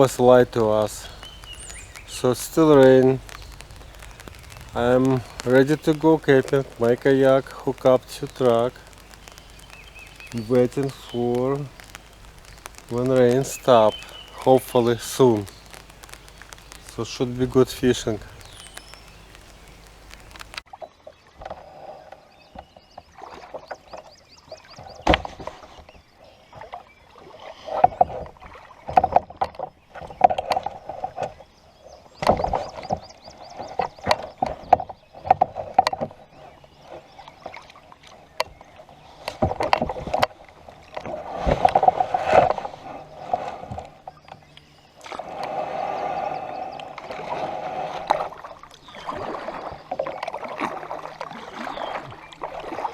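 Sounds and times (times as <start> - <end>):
paddle splashing in water: 32.2 - 44.3, 45.0 - 52.9.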